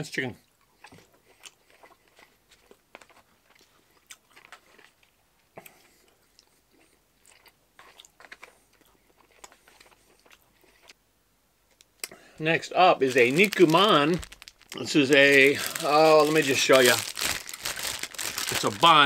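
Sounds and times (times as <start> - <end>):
faint chewing of food: 0.4 - 11.0.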